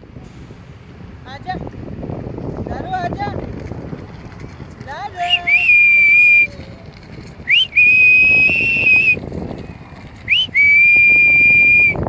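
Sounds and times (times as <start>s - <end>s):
loud whistling call: 5.2s - 6.5s, 7.4s - 9.2s, 10.3s - 12.0s.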